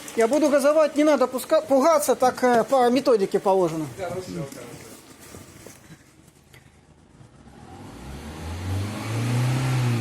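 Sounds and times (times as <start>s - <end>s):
car engine revving: 7.2s - 10.0s.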